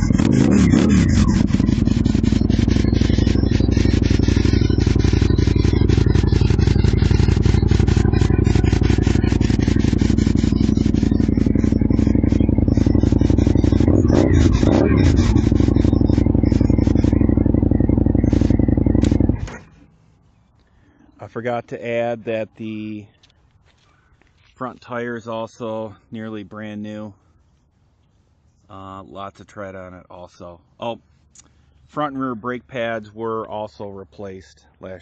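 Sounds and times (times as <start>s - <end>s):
motorcycle engine idling: 0.0s - 21.4s
throttle blip: 0.2s - 19.8s.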